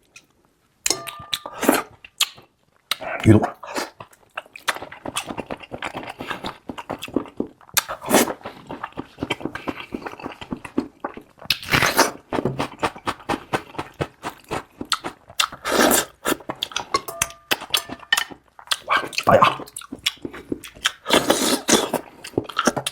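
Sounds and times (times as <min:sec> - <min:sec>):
wet chewing mouth sounds: 0:01.1 - 0:22.9.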